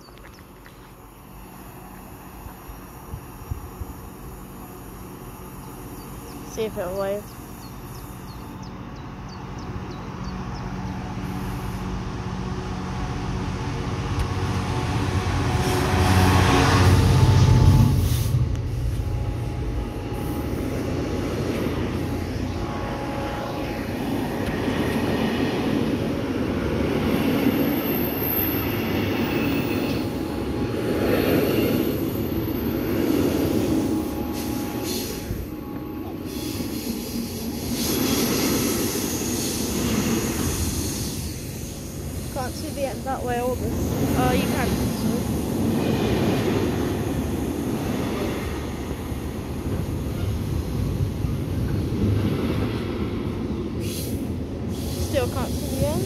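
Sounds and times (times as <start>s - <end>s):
diesel locomotive engine passing: 0.0s - 56.0s
wagons rumbling on rails: 0.0s - 56.0s.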